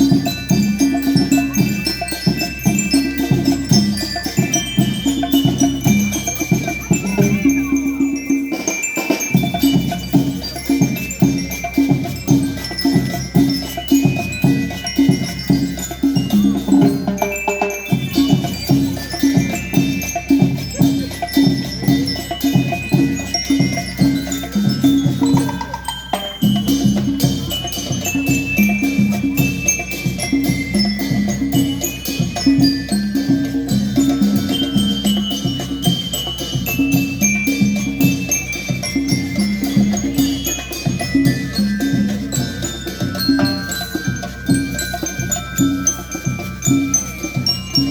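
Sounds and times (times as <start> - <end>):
bell lyres ringing melody: 0.0 - 47.9
march beat on drums: 0.0 - 47.9.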